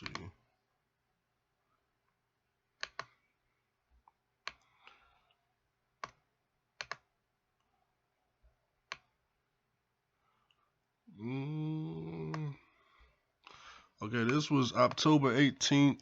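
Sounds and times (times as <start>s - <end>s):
computer mouse clicks: 0.0s - 0.3s, 2.8s - 3.2s, 4.0s - 5.4s, 6.0s - 7.1s, 8.8s - 9.1s.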